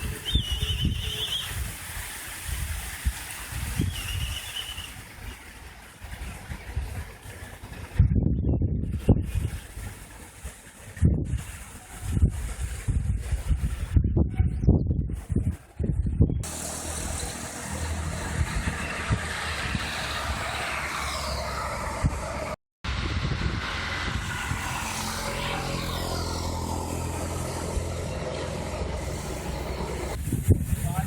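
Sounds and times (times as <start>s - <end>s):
vehicle engine running: 16.4s - 30.2s.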